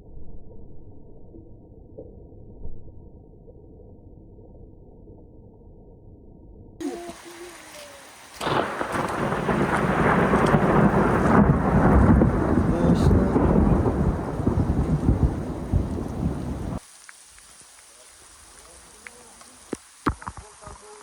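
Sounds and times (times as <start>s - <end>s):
rolling thunder rumble: 7.0s - 16.8s.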